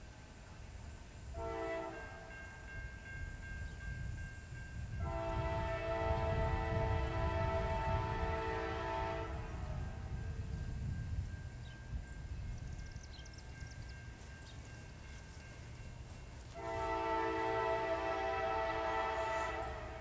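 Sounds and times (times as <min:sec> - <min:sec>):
train low rumble: 0:00.0 - 0:20.0
locomotive air horn chord: 0:01.3 - 0:02.6, 0:04.9 - 0:10.2, 0:16.4 - 0:20.0.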